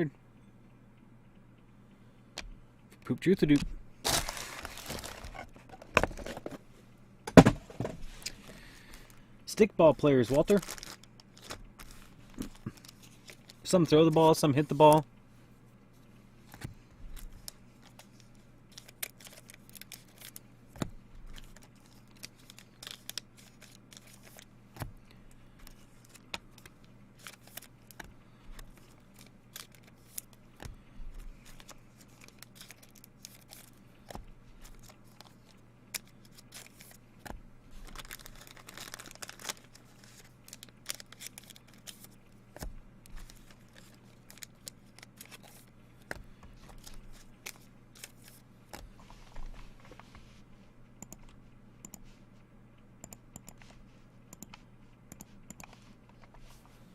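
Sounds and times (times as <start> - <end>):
low electrical hum: 0.0 - 56.9
wrapper crinkling and tearing: 4.0 - 5.5, 10.3 - 13.6, 17.4 - 20.4, 21.3 - 24.5, 28.7 - 30.4, 31.4 - 33.8, 34.6 - 37.0, 37.7 - 42.2, 43.0 - 45.7.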